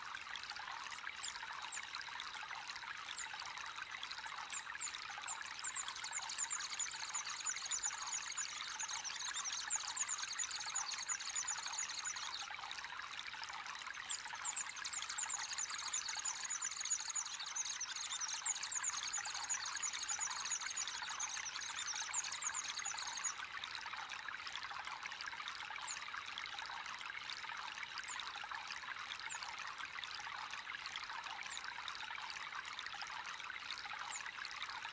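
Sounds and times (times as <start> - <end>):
water pouring into pond: 0.0 - 34.9
small birds chirping: 4.6 - 12.4, 14.2 - 23.4.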